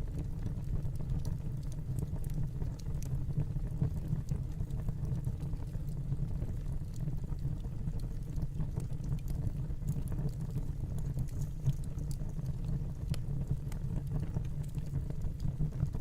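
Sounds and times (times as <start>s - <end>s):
fireplace crackling: 10.2s - 14.9s.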